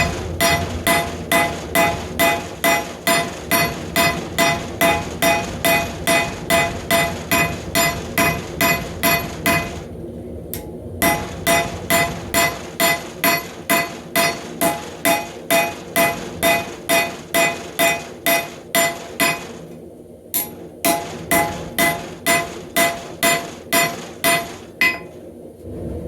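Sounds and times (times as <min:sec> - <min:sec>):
hammer ringing on anvil: 0:00.0 - 0:09.8, 0:11.0 - 0:19.6, 0:20.4 - 0:25.2.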